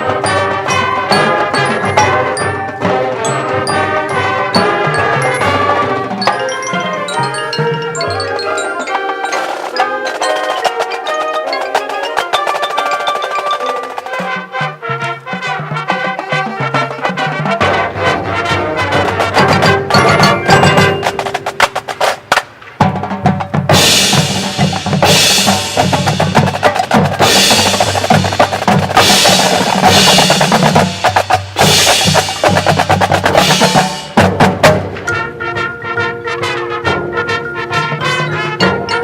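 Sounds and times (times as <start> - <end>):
mallet percussion: 0.0 - 39.0
snare drum rolls and hits: 17.6 - 35.1.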